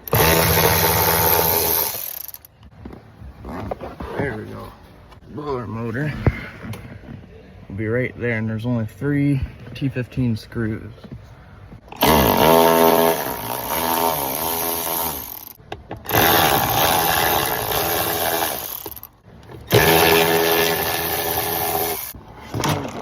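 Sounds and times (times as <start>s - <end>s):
power driver spinning out screws: 0.0s - 2.5s, 12.0s - 22.2s.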